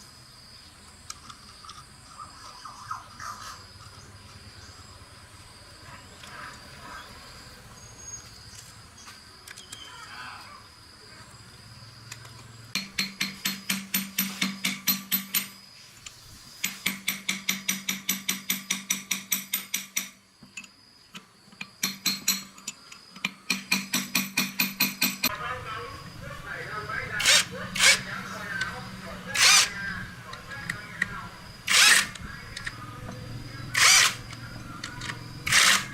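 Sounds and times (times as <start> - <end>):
insects chirping: 0.0 - 35.9.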